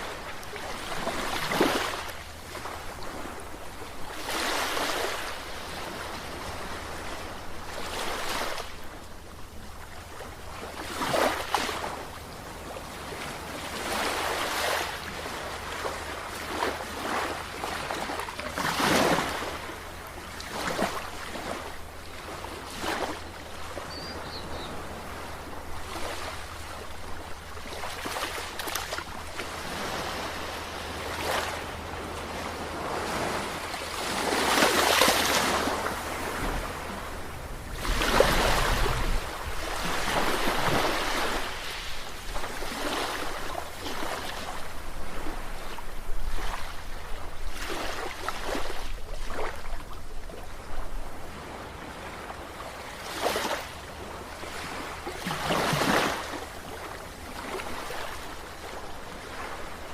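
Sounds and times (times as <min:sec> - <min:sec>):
sea waves washing in: 0:10.7 - 0:49.6.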